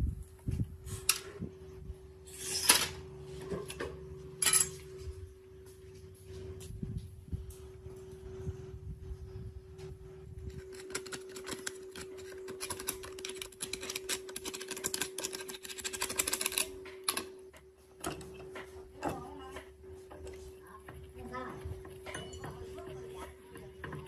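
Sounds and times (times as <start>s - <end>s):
steady hum: 0.0s - 24.0s
hand tools clicking on metal: 10.5s - 17.3s.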